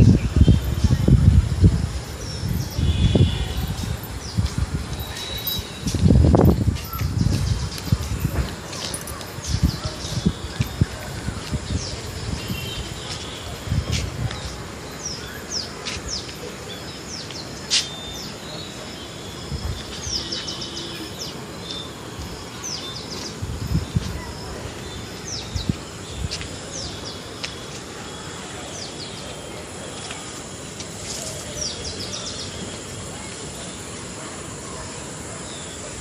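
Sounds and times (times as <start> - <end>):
steady background hiss: 0.0 - 36.0
small birds chattering: 2.2 - 36.0.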